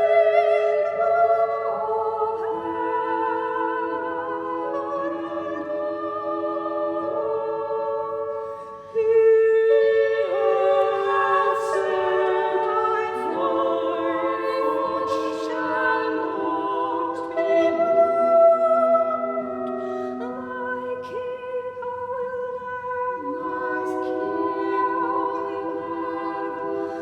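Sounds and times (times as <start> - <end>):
voices singing a psalm: 0.0 - 27.0.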